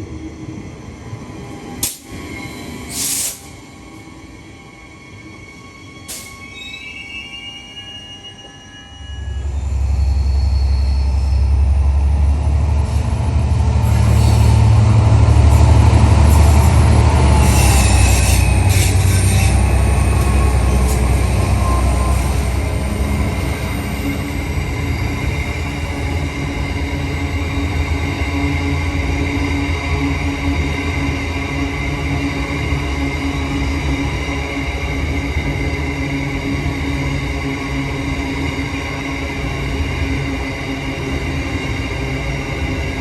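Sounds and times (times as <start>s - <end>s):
train rumbling on track: 0.0s - 43.0s
wheel squeal and clicks: 15.6s - 22.4s.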